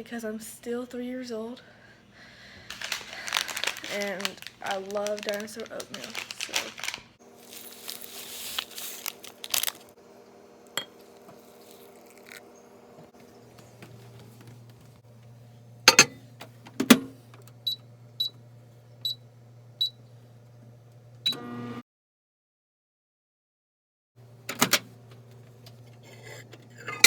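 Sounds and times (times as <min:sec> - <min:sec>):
microwave door clunks: 0:15.9 - 0:17.2, 0:24.5 - 0:24.9
microwave start click: 0:20.9 - 0:21.8, 0:24.3 - 0:25.8.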